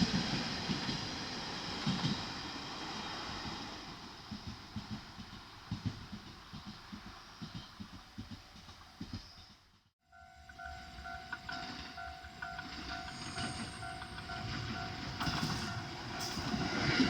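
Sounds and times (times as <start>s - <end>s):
train rumbling: 0.0s - 17.0s
train wheels knocking: 4.2s - 9.7s, 10.5s - 17.0s.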